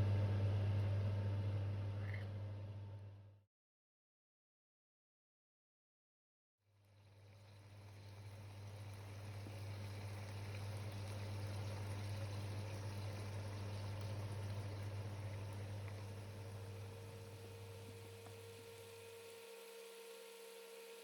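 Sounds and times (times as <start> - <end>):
pot simmering: 7.0 - 20.9.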